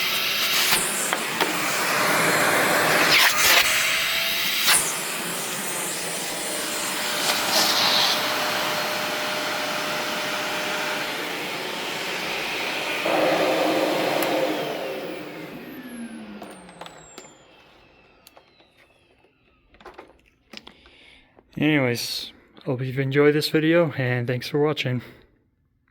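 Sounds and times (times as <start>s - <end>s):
motor winding down whine: 0.0s - 20.1s
vacuum cleaner running: 0.0s - 20.1s.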